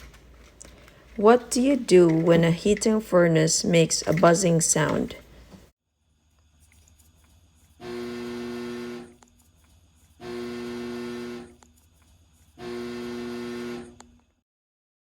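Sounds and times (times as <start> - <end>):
furnace electrical buzz: 4.8 - 14.4.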